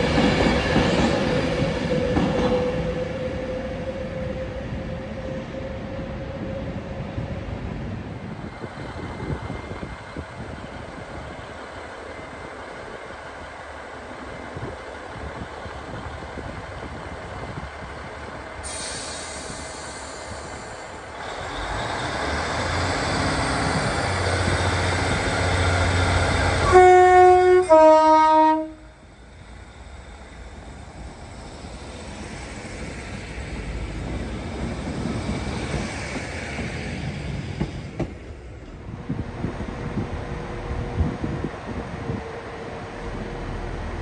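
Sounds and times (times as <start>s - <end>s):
train rumbling: 0.0s - 44.0s
train two-tone horn: 26.4s - 29.0s.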